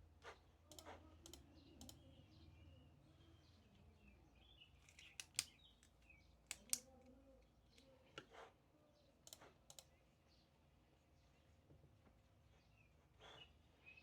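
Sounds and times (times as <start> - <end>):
computer keyboard key clicks: 4.9 - 6.9.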